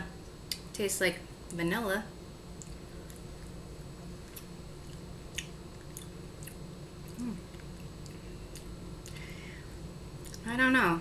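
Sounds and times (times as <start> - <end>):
person chewing with wet clicks: 0.2 - 0.7, 2.6 - 3.6, 4.2 - 9.3, 10.2 - 10.5
person humming briefly: 7.2 - 7.5.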